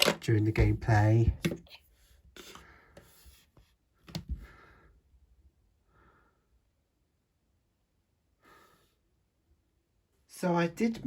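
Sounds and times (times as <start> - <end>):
faint breaths: 4.4 - 5.0.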